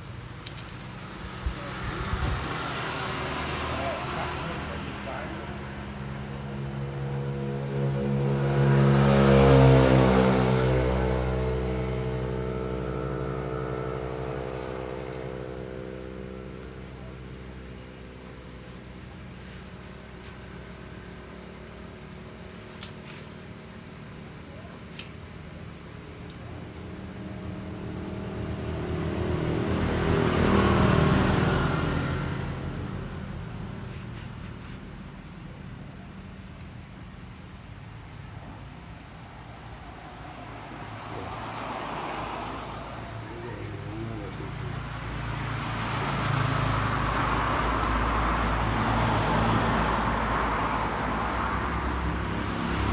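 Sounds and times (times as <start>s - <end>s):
electric bike motor whirring: 0.4s - 38.8s.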